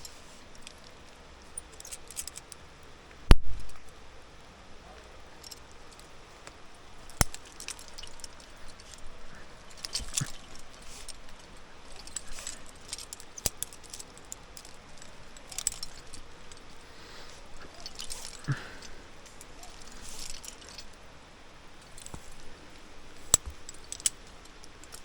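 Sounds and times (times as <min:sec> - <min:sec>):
climbing gear clinking and rattling: 0:00.0 - 0:02.8, 0:05.0 - 0:25.0
sharp metallic clicks: 0:07.1 - 0:09.1.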